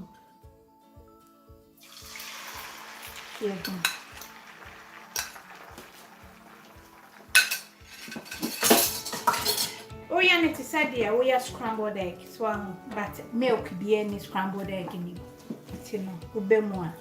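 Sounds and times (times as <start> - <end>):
eggs sizzling in oil: 1.8 - 9.8
metal spatula scraping a pan: 7.3 - 9.9.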